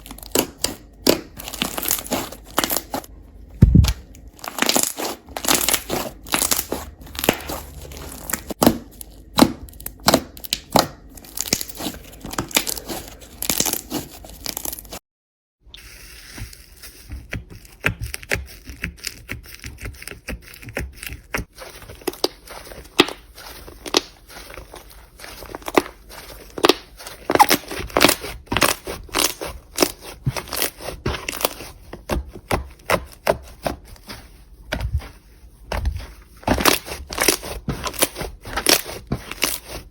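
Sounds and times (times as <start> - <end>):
slime crackling and popping: 0.1 - 15.0, 22.0 - 24.8, 25.4 - 31.7.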